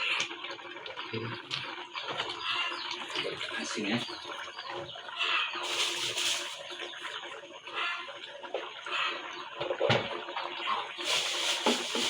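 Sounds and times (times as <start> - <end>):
water running and splashing: 5.6 - 7.5, 10.8 - 12.0.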